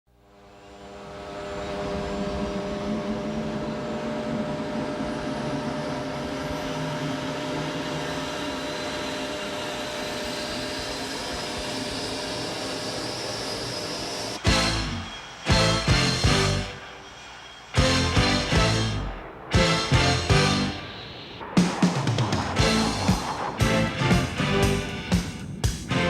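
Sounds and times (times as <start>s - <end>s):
jet engine turbine whine: 0.1s - 26.0s.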